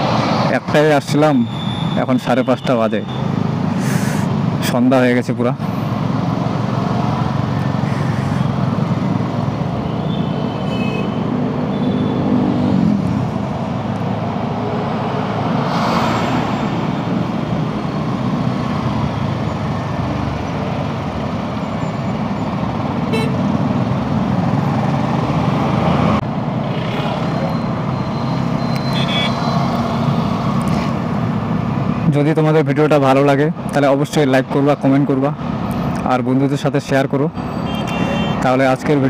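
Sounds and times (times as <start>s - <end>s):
road and traffic noise: 0.0s - 39.0s
vehicle horn tooting: 23.1s - 23.4s, 28.8s - 29.4s, 37.5s - 38.4s.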